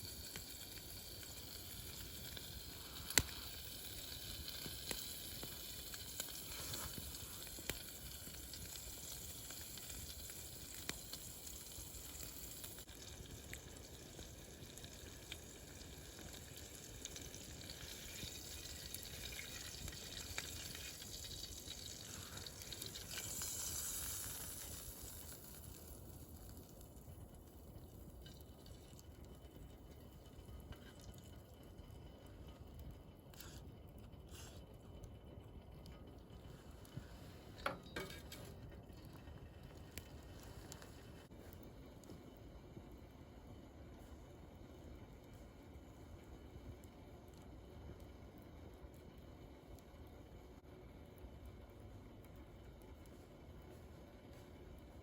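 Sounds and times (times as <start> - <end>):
fire hissing: 0.0 - 28.8, 33.3 - 35.1, 36.4 - 42.1
fire crackles: 0.0 - 55.0.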